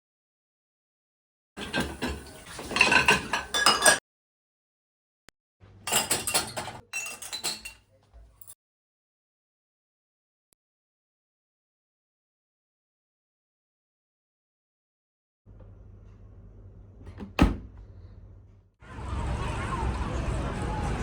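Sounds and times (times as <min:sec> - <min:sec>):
dishes and cutlery clinking: 0:01.6 - 0:04.0, 0:05.9 - 0:08.6.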